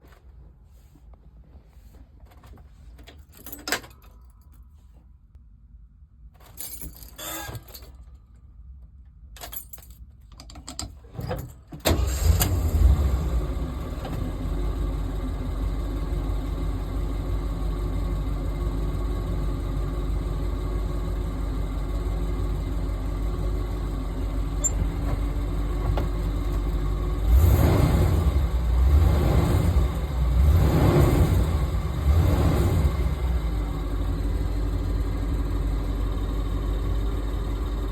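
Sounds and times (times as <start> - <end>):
keys rattling and clicks: 3.0 - 4.7, 6.4 - 8.3, 9.4 - 11.6
car engine starting and idling: 11.6 - 37.9.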